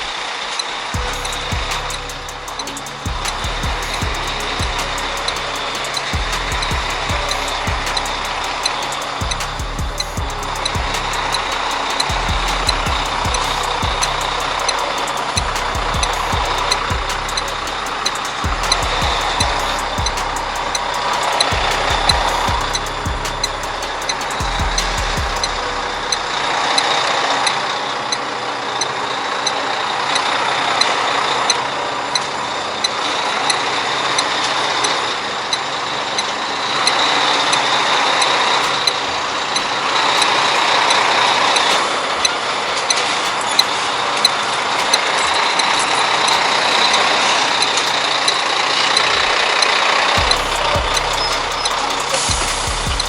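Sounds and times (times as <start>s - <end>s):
high whine: 0.0s - 53.0s
truck engine running: 1.0s - 26.4s, 50.2s - 53.0s.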